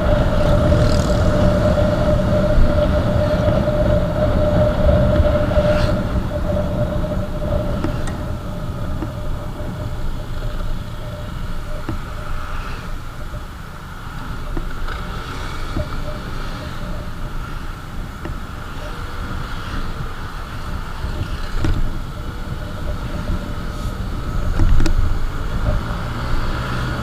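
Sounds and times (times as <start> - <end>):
faint whine: 0.0 - 27.0
motorcycle engine rumble: 0.0 - 27.0.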